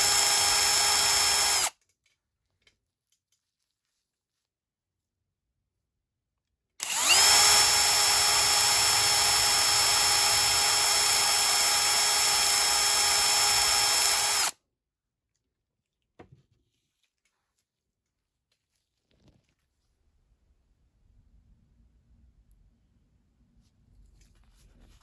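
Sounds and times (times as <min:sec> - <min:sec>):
electric drill whining: 0:00.0 - 0:01.7, 0:06.8 - 0:14.6.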